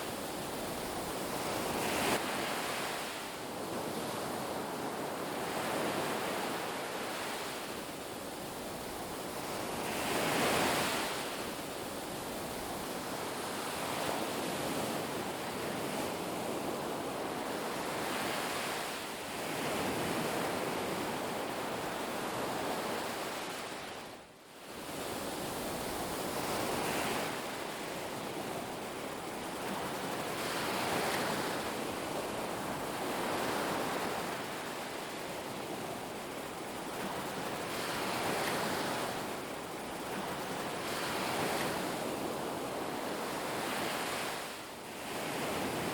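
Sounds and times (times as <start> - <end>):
ocean surf on beach: 0.0 - 45.9.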